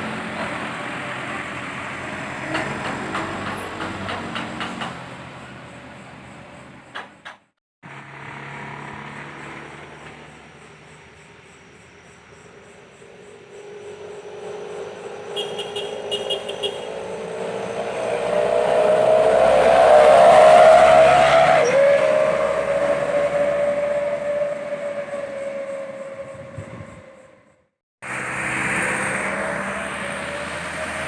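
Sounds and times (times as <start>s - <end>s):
vehicle passing with howling exhaust: 7.9s - 11.4s, 13.0s - 31.0s.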